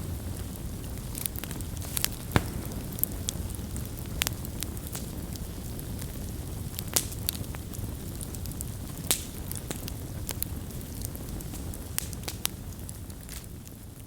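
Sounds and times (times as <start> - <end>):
fire crackles and pops: 0.0 - 14.0
wood fire rumbling: 0.0 - 14.0.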